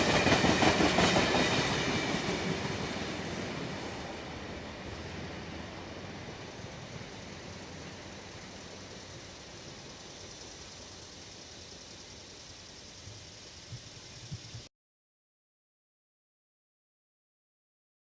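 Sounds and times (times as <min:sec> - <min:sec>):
passenger train rumble: 0:00.0 - 0:10.9.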